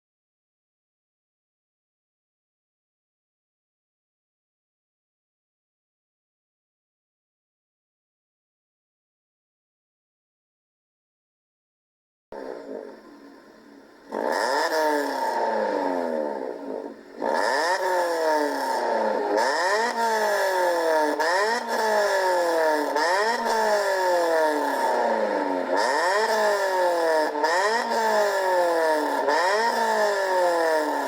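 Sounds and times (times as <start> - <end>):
car engine revving: 12.4 - 31.0.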